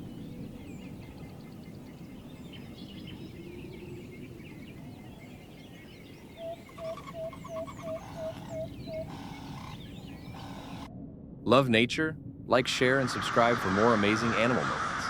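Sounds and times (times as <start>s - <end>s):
small birds chirping and whistling: 0.2s - 10.9s
loud repeating bird call: 6.7s - 10.9s.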